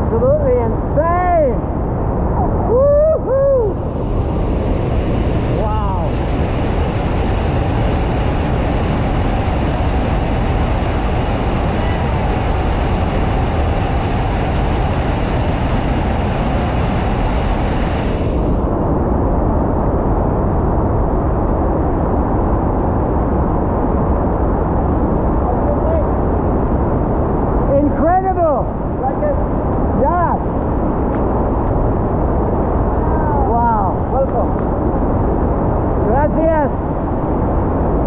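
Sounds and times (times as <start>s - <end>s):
muffled low rumble: 1.4s - 38.0s
waterfall roaring: 3.7s - 18.9s.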